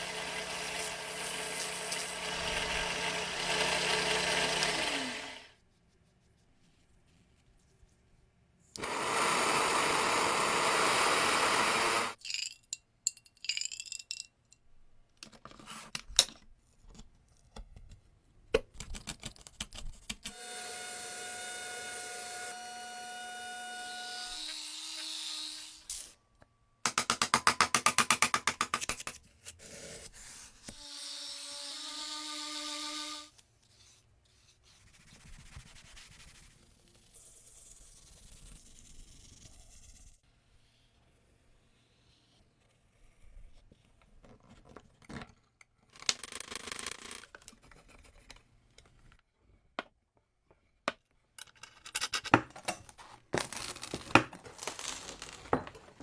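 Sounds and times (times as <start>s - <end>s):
small tool motors whining: 0.0s - 5.5s, 8.8s - 12.2s, 20.3s - 26.0s, 30.7s - 33.4s.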